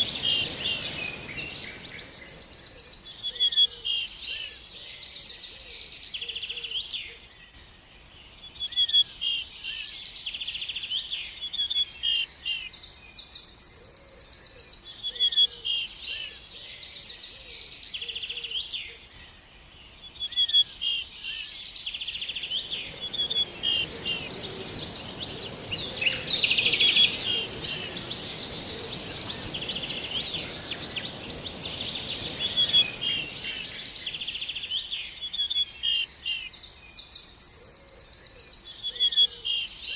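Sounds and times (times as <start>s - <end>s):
steady high hiss: 0.0s - 3.0s, 22.2s - 35.2s
bird singing: 0.0s - 3.4s, 22.1s - 36.8s.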